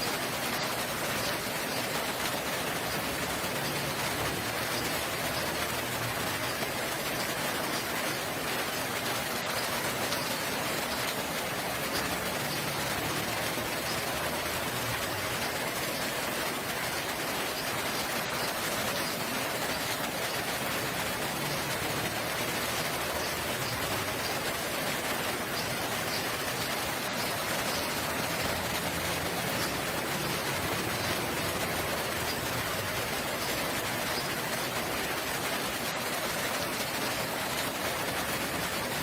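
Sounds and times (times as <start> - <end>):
rain falling: 0.0 - 39.0.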